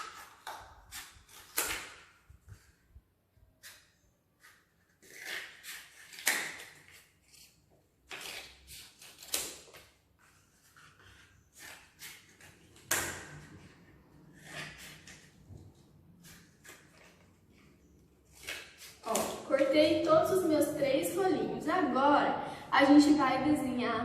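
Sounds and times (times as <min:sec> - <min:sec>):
scissors snipping cardboard: 0:00.0 - 0:02.2, 0:03.6 - 0:07.4.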